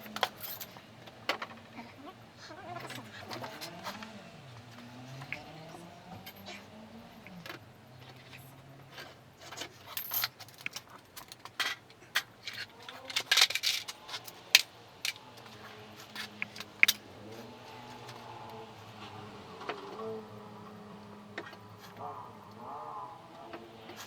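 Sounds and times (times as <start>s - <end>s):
small metal objects clinking: 0.0s - 18.6s
faint low hum: 0.0s - 24.0s.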